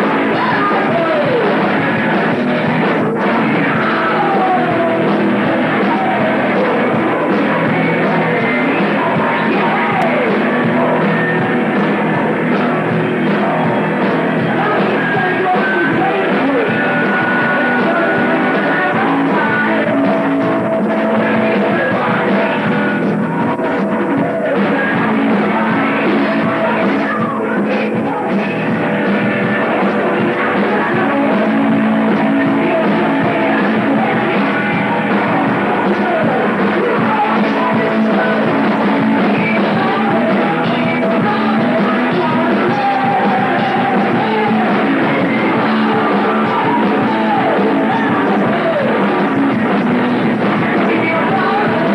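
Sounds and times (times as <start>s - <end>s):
bass guitar: 0.0s - 51.9s
drums: 0.0s - 51.9s
electric guitars: 0.0s - 51.9s.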